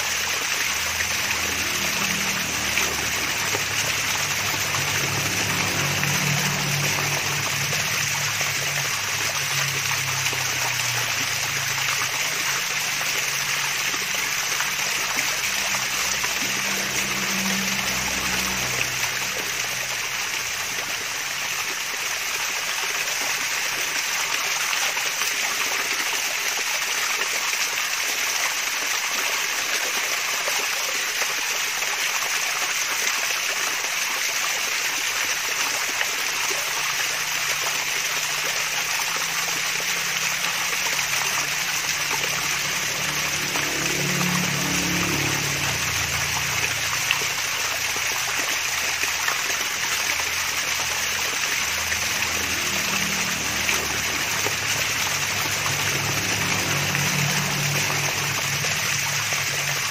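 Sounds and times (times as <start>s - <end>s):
small waterfall splashing: 0.0s - 59.9s
low hum: 41.9s - 48.1s.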